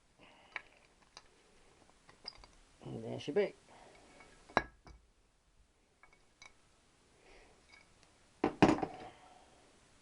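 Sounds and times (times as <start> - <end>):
metal part clattering: 2.1 - 2.6.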